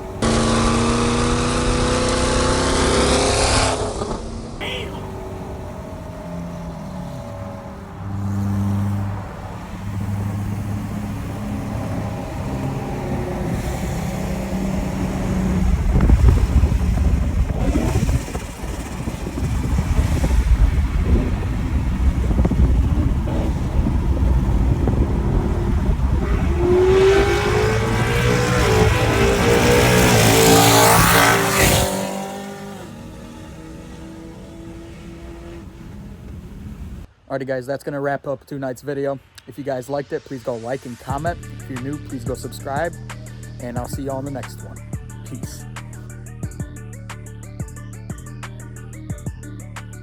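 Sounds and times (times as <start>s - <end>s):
car engines running: 0.0s - 37.1s
engine revving up: 0.0s - 37.1s.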